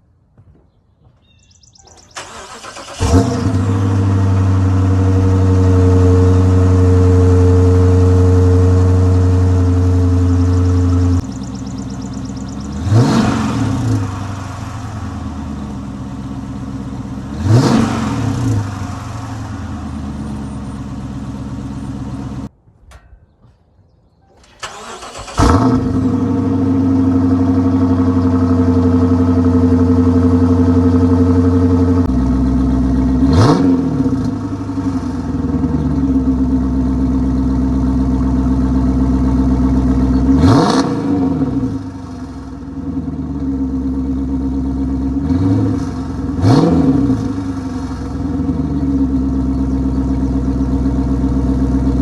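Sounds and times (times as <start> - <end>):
engine cranking and starting: 2.0 - 4.6, 24.3 - 27.0
car engine idling: 2.1 - 22.5, 24.4 - 52.0
engine revving: 2.2 - 22.5, 24.5 - 52.0.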